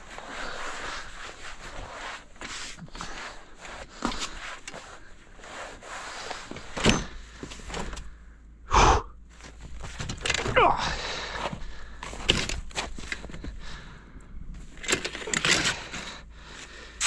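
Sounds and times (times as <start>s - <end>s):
crunching and scraping in snow: 0.0s - 6.7s.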